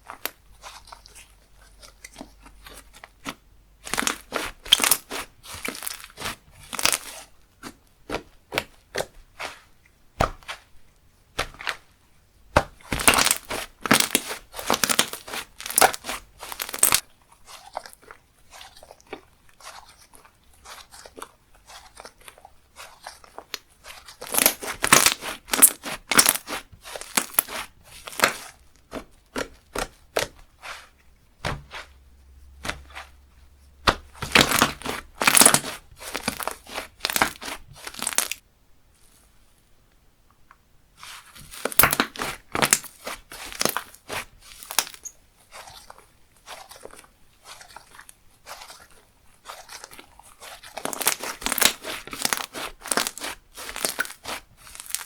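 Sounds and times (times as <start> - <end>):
slime stretched by hand: 12.6 - 17.0, 33.8 - 38.4, 47.4 - 55.0.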